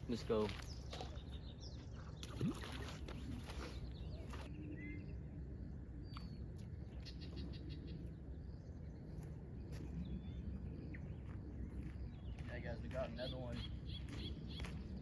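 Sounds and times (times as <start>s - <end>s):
steady low rumble: 3.3s - 15.0s.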